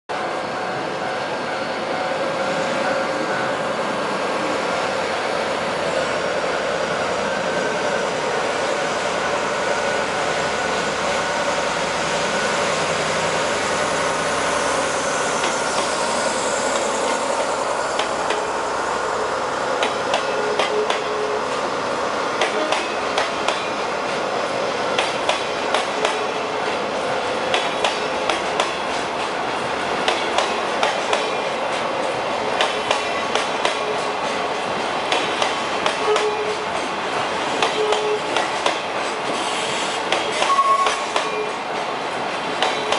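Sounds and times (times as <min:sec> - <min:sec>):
diesel locomotive passing: 0:00.1 - 0:42.9
wheels clacking over rail joints: 0:25.0 - 0:26.2.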